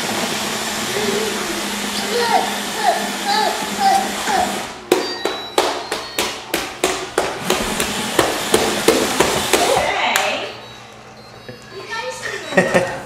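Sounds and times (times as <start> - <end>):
sharp knocks on hard plastic: 5.6 - 9.7.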